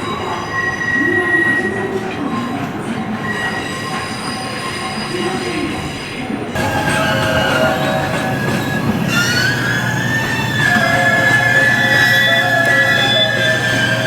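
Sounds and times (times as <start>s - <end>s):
train wheels squealing: 0.0s - 14.0s
freight train rumbling: 5.2s - 14.0s.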